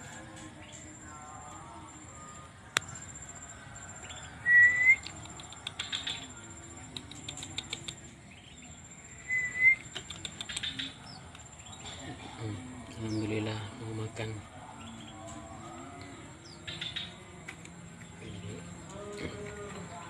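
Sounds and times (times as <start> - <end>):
bird clicks and wing flutters: 4.8 - 8.1, 9.5 - 11.5.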